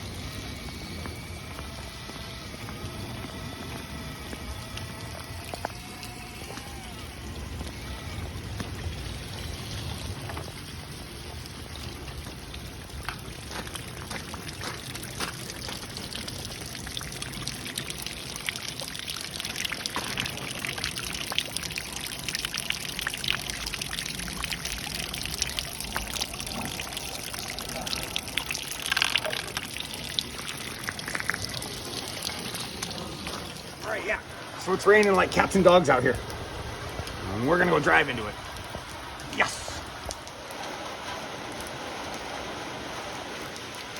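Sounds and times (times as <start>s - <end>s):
wavering whine: 0.0s - 10.6s
rain pattering: 0.0s - 43.9s.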